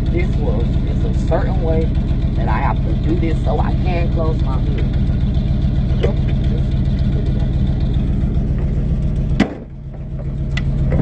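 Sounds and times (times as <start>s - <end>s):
vehicle engine idling: 0.0s - 11.0s
sharp thump: 9.4s - 9.8s.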